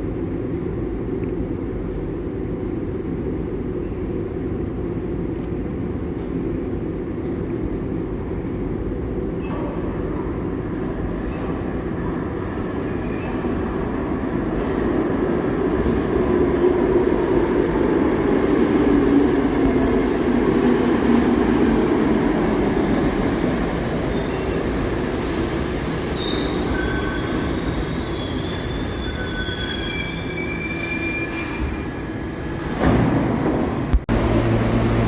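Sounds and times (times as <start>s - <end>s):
subway train running: 0.0s - 35.0s.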